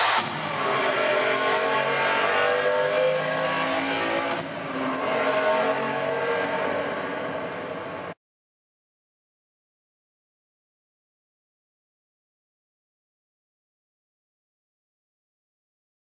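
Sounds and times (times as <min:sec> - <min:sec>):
car engine revving: 0:00.0 - 0:08.2.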